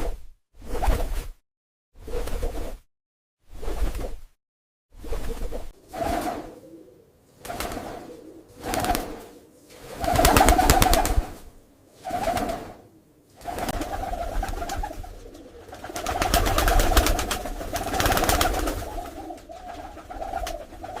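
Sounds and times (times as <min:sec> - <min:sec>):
pigeons cooing: 0:06.2 - 0:11.4, 0:12.2 - 0:21.0.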